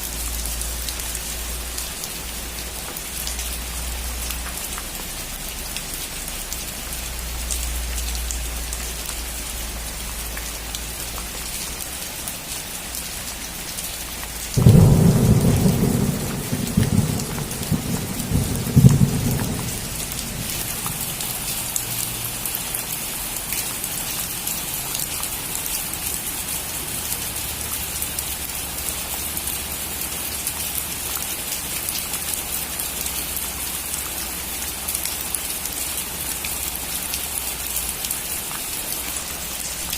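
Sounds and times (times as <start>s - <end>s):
rain falling on a roof: 0.0s - 39.9s
thunder rumbling: 14.6s - 21.8s.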